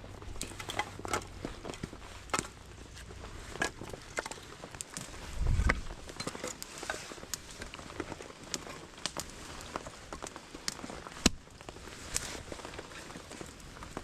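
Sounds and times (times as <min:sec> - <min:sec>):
rain pattering: 0:00.0 - 0:14.0
firewood splitting knock: 0:11.1 - 0:11.4.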